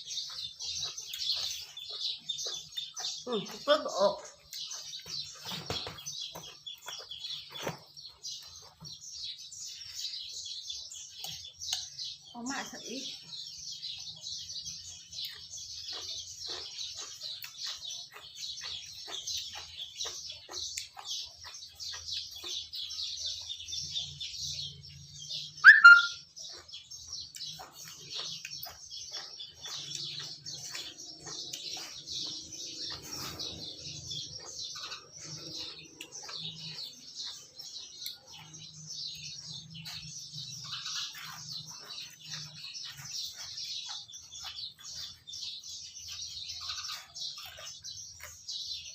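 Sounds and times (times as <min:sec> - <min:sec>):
small birds chirping: 0:00.0 - 0:48.9
high bird cry: 0:25.5 - 0:26.6.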